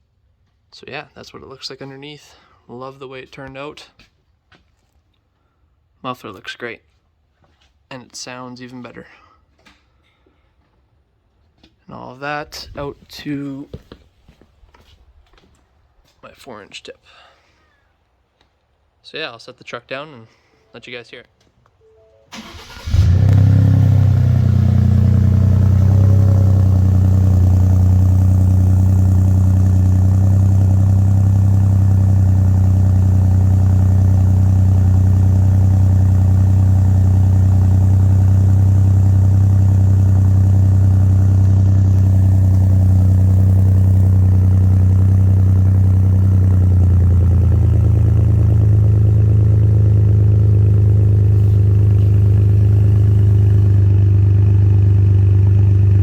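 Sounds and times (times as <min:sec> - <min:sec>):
truck engine starting and idling: 0:22.3 - 0:56.0.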